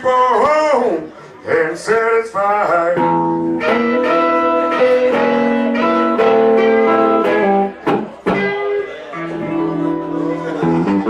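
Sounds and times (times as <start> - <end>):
blues band playing: 1.5 - 11.0
guitar with long held notes: 2.8 - 11.0.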